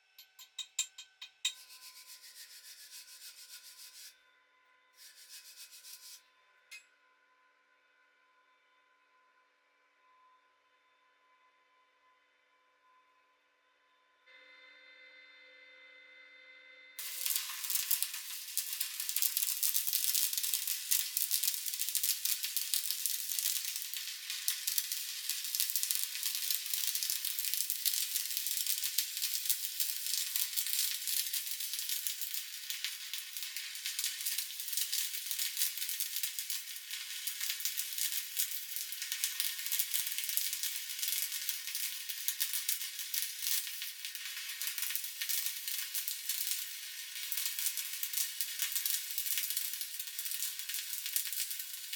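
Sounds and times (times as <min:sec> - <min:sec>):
welding arc sizzling crackle: 0:00.0 - 0:04.1, 0:05.0 - 0:06.2, 0:17.0 - 0:51.9.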